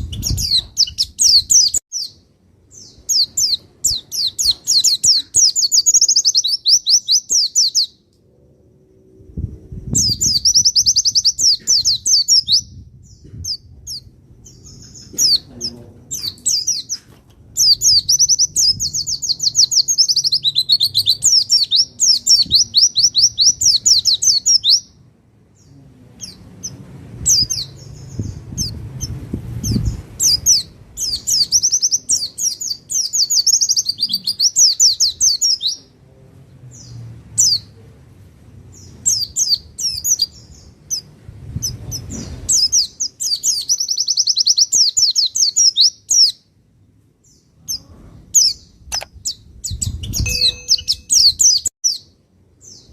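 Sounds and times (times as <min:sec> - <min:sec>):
bird singing high trills: 0:00.0 - 0:08.1, 0:08.9 - 0:15.5, 0:17.6 - 0:25.0, 0:48.4 - 0:52.9.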